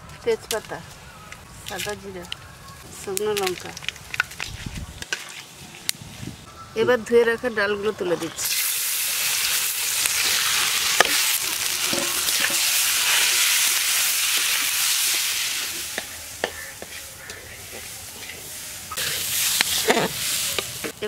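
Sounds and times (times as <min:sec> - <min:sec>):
lentils sizzling in hot oil: 0:08.4 - 0:21.0
metal spatula scraping wok: 0:10.1 - 0:21.0.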